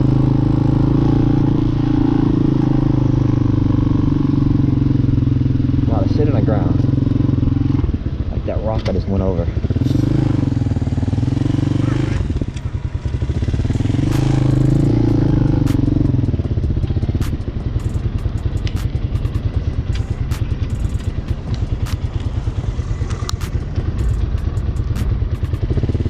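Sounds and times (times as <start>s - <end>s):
motorcycle engine running: 0.0s - 26.0s
sharp clicks: 14.0s - 16.4s, 17.0s - 26.0s.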